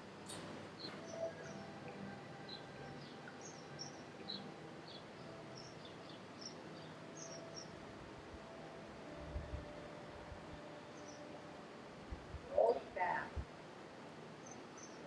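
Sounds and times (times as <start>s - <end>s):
faint outdoor background: 0.0s - 15.0s
small birds chirping: 0.2s - 9.8s, 10.6s - 11.4s, 14.4s - 15.0s.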